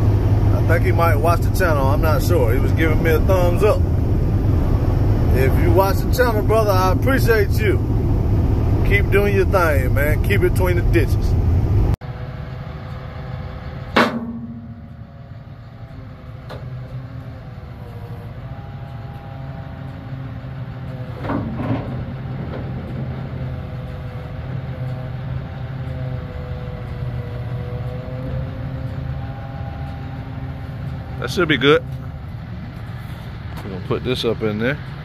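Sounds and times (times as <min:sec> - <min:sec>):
heavy truck engine running: 0:00.0 - 0:35.0
loud metallic bang: 0:13.9 - 0:15.2
metal clanks: 0:13.9 - 0:15.2, 0:20.9 - 0:24.2.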